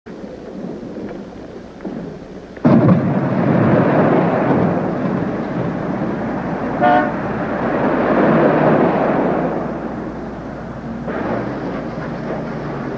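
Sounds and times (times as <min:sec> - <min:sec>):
steady rain: 0:00.1 - 0:12.9
thunder rumbling: 0:00.1 - 0:12.9
short horn toot: 0:06.8 - 0:07.2.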